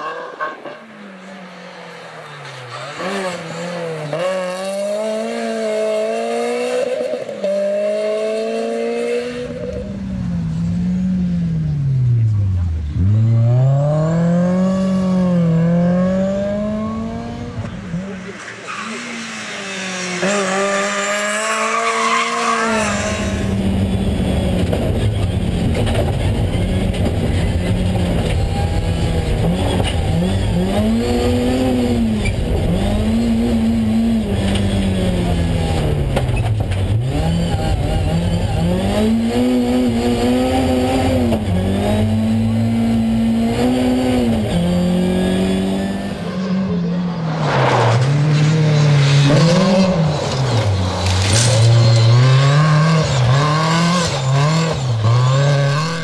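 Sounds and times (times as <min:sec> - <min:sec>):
car engine revving: 0:00.0 - 0:56.0
car passing by: 0:47.0 - 0:51.2.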